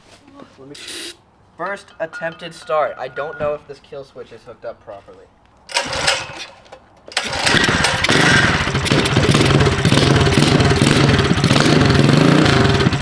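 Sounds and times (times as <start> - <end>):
minibike engine revving: 5.7 - 13.0.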